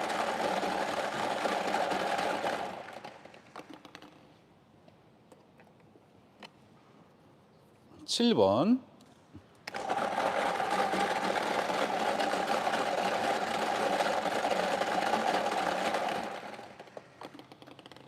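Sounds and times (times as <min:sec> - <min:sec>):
raffle machine rattling clicks: 0:00.0 - 0:04.1, 0:09.7 - 0:18.0.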